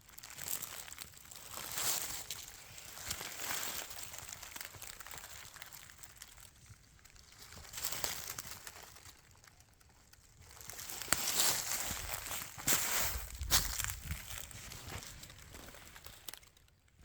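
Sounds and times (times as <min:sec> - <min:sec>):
footsteps crunching dry leaves: 0:00.0 - 0:06.6, 0:07.2 - 0:09.7, 0:10.4 - 0:16.6
twigs snapping: 0:07.0 - 0:16.7.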